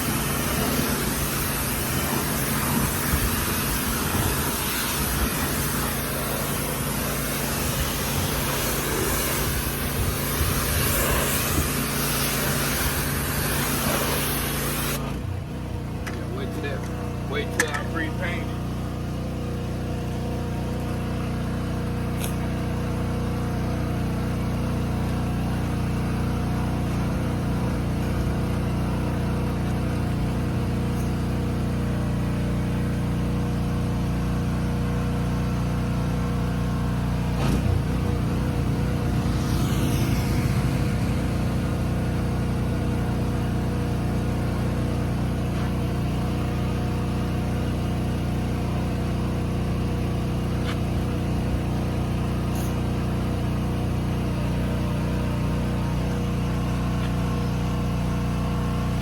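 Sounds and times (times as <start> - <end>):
sharp click: 22.2 - 22.4
engine humming: 36.2 - 46.6.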